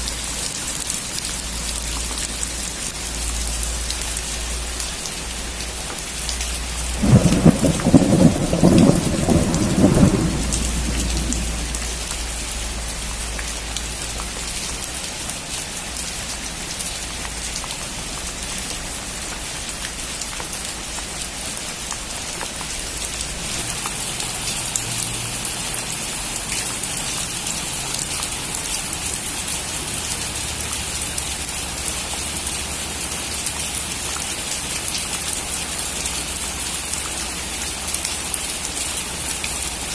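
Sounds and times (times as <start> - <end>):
steady rain: 0.0 - 39.9
thunderclap rumbling: 6.9 - 12.3.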